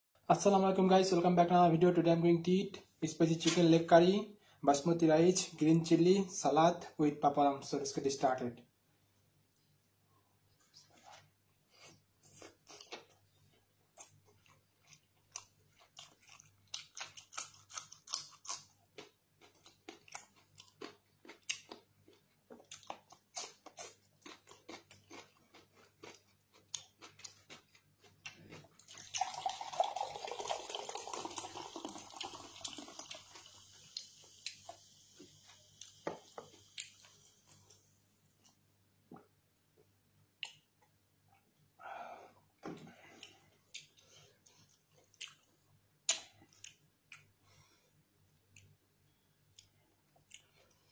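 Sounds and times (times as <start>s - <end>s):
chewing and wet mouth sounds: 10.6s - 29.6s, 32.2s - 38.6s, 43.0s - 47.4s, 49.4s - 50.9s.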